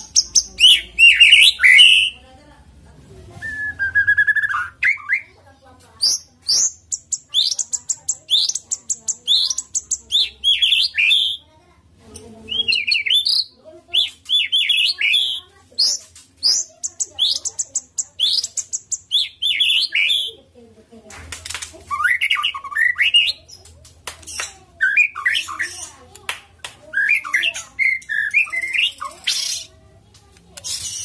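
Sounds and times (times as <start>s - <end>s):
songbird singing varied song: 6.0s - 11.4s, 12.5s - 20.3s, 27.0s - 29.7s.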